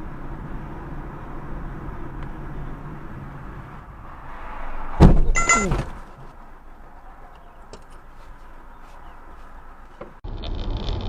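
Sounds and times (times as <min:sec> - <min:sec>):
car road noise: 0:00.0 - 0:11.0
car collision impact: 0:03.7 - 0:06.6.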